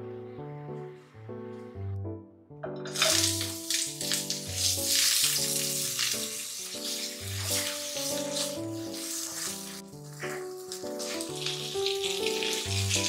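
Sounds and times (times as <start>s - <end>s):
background music: 0.0s - 13.0s
onions sizzling in oil: 2.9s - 13.0s.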